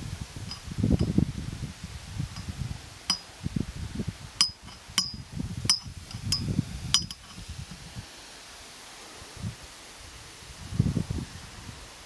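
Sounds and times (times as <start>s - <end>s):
wind rumbling on microphone: 0.0s - 12.0s
clinking bird calls: 4.4s - 7.4s.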